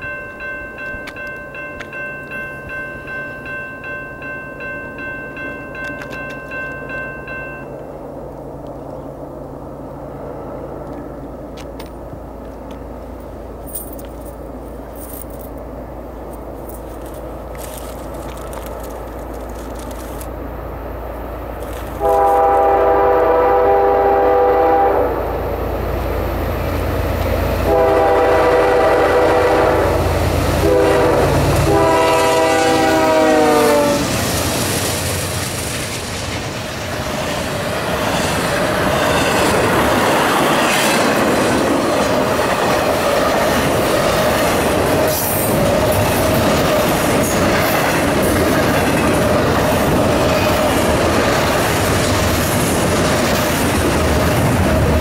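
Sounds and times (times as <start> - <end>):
diesel locomotive engines rumbling: 0.0 - 55.0
train cars rushing clatter: 26.8 - 55.0.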